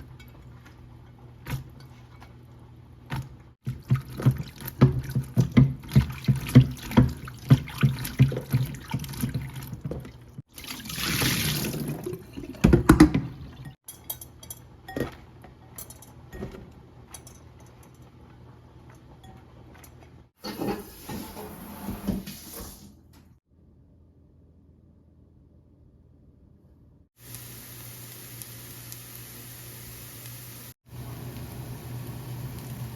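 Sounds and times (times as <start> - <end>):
tap water running: 3.2 - 13.7, 20.4 - 23.0, 27.2 - 32.9
dishes knocking: 12.6 - 13.4.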